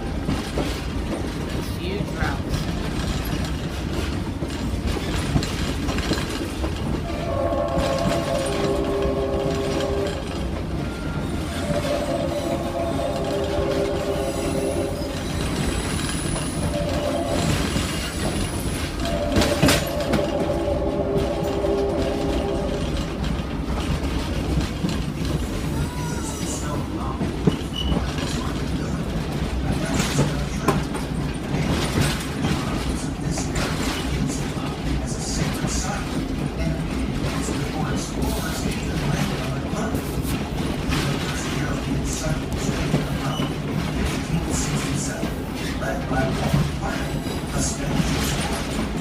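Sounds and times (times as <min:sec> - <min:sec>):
train wheels rumbling on track: 0:00.0 - 0:49.0
train horn blasts: 0:07.0 - 0:15.6, 0:16.3 - 0:23.4.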